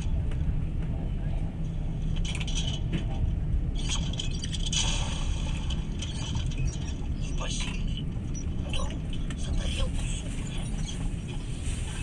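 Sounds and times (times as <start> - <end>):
carriage rattling and squeaking: 2.0 - 11.4.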